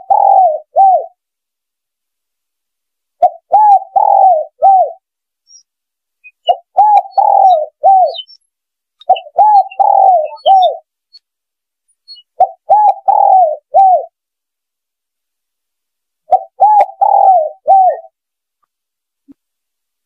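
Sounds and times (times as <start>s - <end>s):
dove cooing: 0.0s - 1.2s, 3.2s - 5.6s, 6.4s - 8.4s, 9.0s - 10.9s, 12.2s - 14.2s, 16.3s - 18.1s.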